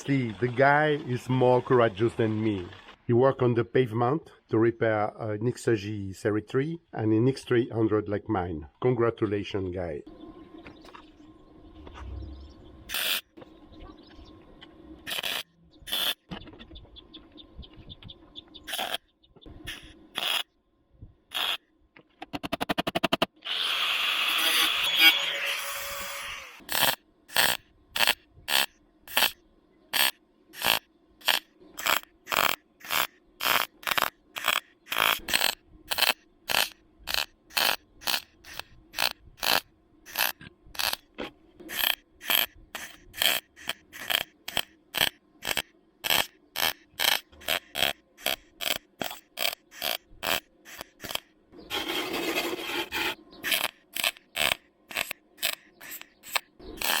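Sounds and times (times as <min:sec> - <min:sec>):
short welding bursts: 0:12.9 - 0:13.2, 0:15.1 - 0:16.2, 0:18.7 - 0:19.0, 0:19.7 - 0:20.4, 0:21.3 - 0:21.6, 0:23.6 - 0:41.0, 0:41.7 - 0:57.0
continuous weld: 0:12.9 - 0:13.4, 0:15.0 - 0:16.3, 0:18.7 - 0:19.0, 0:19.6 - 0:20.5, 0:21.3 - 0:21.6, 0:22.9 - 0:57.0.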